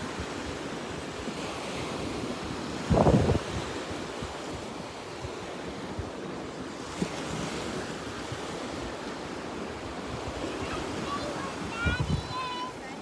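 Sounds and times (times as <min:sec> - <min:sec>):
ocean surf washing onto beach: 0:00.0 - 0:13.0
wind buffeting microphone: 0:02.0 - 0:06.1, 0:09.7 - 0:13.0.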